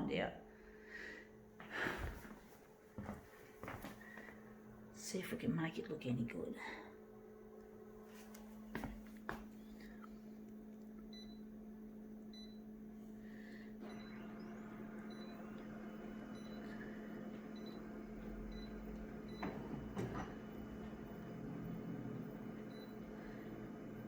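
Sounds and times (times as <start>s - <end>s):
photocopier humming: 7.2s - 24.0s.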